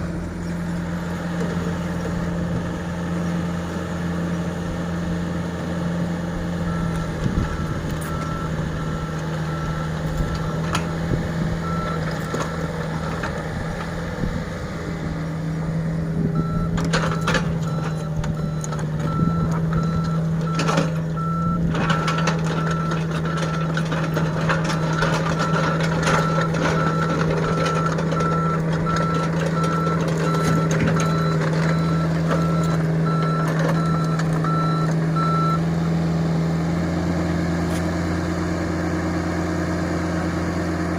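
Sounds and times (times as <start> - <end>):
diesel engine running: 0.0 - 40.9
reversing alarm beeping: 6.6 - 10.8, 11.6 - 12.7, 16.4 - 35.7.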